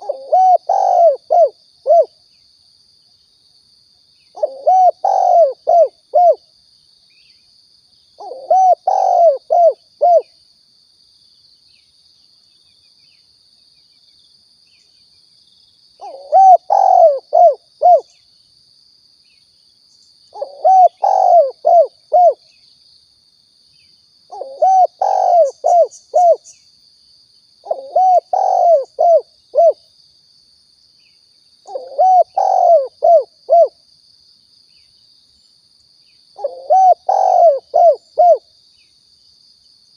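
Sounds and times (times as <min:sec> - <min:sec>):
dove cooing: 0:00.0 - 0:02.2, 0:04.4 - 0:06.4, 0:08.2 - 0:10.3, 0:16.0 - 0:18.1, 0:20.4 - 0:22.4, 0:24.3 - 0:26.4, 0:27.7 - 0:29.8, 0:31.7 - 0:33.8, 0:36.4 - 0:38.5.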